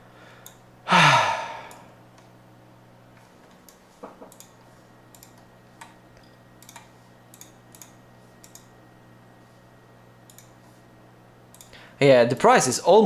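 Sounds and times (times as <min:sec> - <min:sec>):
faint low hum: 0:00.0 - 0:13.0
computer keyboard clicks: 0:03.5 - 0:08.7, 0:10.3 - 0:10.6, 0:11.5 - 0:11.8.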